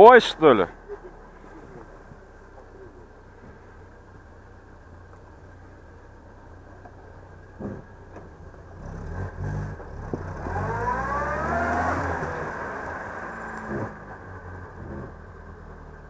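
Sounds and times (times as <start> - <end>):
off-road vehicle engine revving: 6.8 - 16.0.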